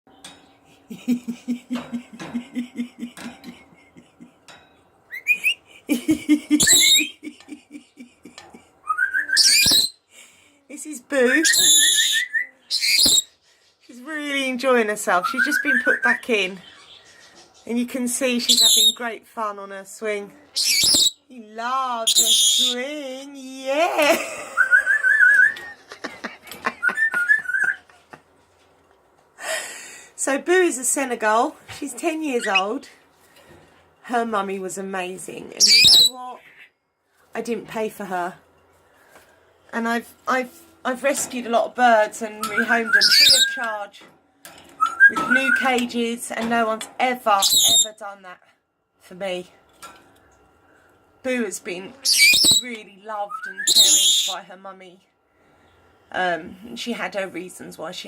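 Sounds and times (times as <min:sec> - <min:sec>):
parrot whistling: 0:05.1 - 0:05.6, 0:06.6 - 0:07.1, 0:08.8 - 0:10.0, 0:11.4 - 0:13.3, 0:20.6 - 0:21.2, 0:22.1 - 0:22.8, 0:24.6 - 0:25.8, 0:26.8 - 0:27.8, 0:35.6 - 0:36.1, 0:42.5 - 0:43.6, 0:44.8 - 0:45.3, 0:47.4 - 0:47.9, 0:52.1 - 0:52.6, 0:53.3 - 0:54.4.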